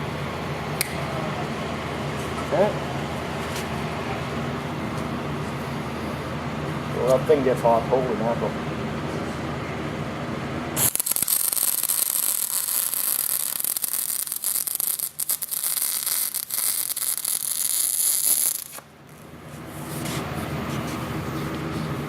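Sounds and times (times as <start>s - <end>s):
welding arc crackling: 10.8s - 19.3s.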